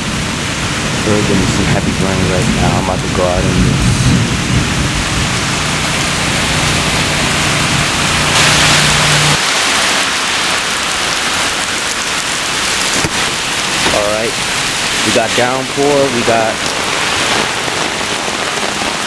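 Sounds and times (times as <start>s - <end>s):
low steady hum: 0.0s - 9.4s
heavy rain: 0.0s - 19.0s.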